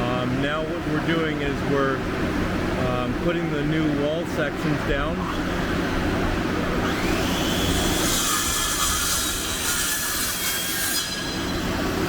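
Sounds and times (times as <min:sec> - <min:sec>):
electric power saw cutting: 0:06.7 - 0:12.0.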